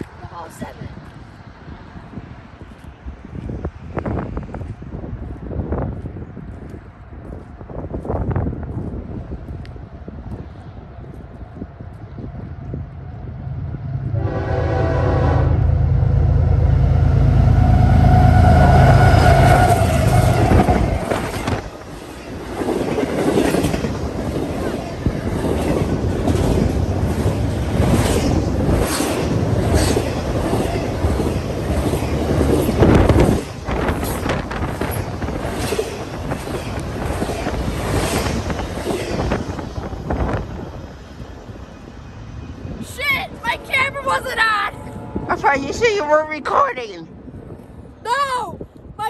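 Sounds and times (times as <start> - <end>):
locomotive engine rumbling: 10.5 - 47.5
locomotive horn: 14.0 - 21.2
train wheels clattering over rails: 19.2 - 41.0.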